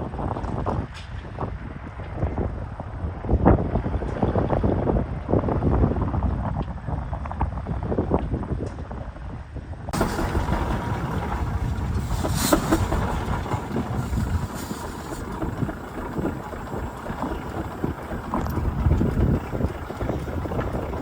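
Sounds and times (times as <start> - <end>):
tractor engine running: 9.9 - 21.0.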